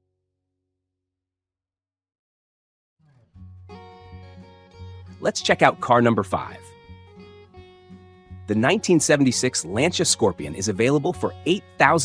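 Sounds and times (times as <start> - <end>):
background music: 3.6 - 12.0.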